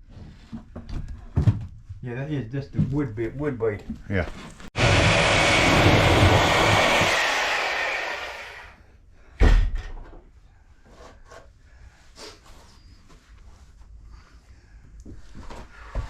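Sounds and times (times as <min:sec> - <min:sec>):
power saw cutting wood: 0:04.8 - 0:08.8.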